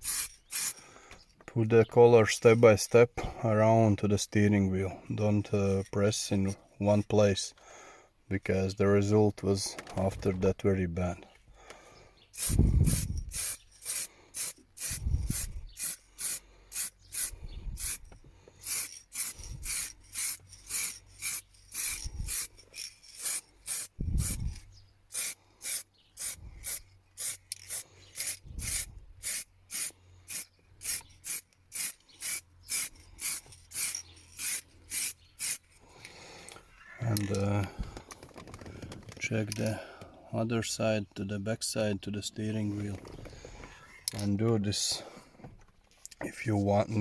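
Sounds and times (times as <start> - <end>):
aerosol spray can bursts: 0.0 - 0.8, 12.4 - 18.0, 18.6 - 22.5, 23.2 - 24.4, 25.1 - 35.6.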